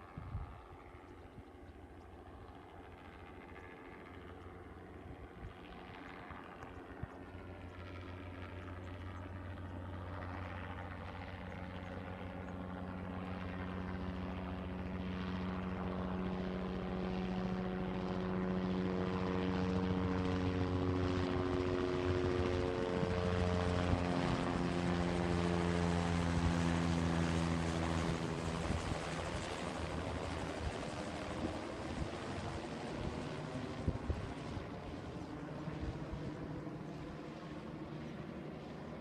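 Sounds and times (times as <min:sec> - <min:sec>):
helicopter engine and rotor: 0:00.0 - 0:39.0.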